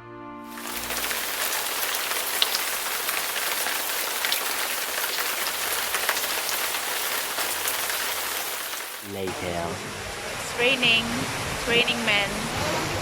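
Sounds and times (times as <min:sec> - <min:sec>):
orchestral music: 0:00.0 - 0:01.4
rain falling steadily: 0:00.5 - 0:13.0.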